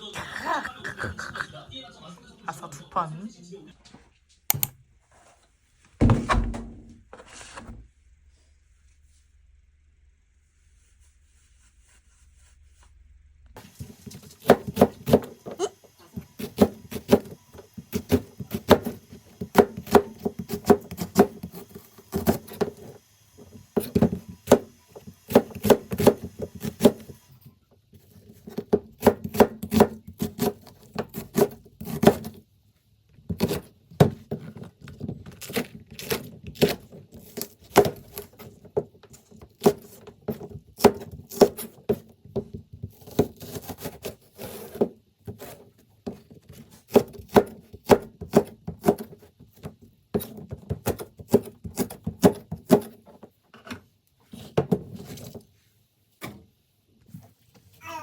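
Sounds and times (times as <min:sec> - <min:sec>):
knife chopping on cutting board: 0:13.7 - 0:15.5, 0:16.2 - 0:22.9, 0:23.8 - 0:27.1, 0:28.5 - 0:32.4, 0:46.9 - 0:49.2.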